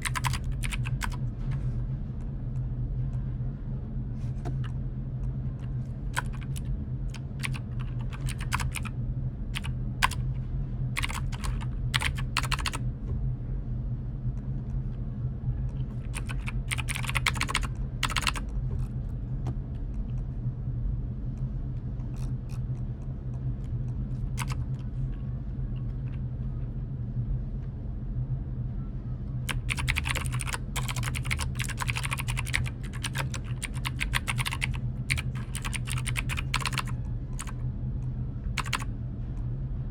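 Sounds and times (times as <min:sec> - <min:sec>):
keyboard typing clicks: 0:00.0 - 0:01.2, 0:06.2 - 0:08.9, 0:09.6 - 0:10.2, 0:11.0 - 0:12.8, 0:15.9 - 0:18.4, 0:24.4 - 0:24.6, 0:29.5 - 0:37.6, 0:38.6 - 0:38.8
steady low hum: 0:00.0 - 0:39.9.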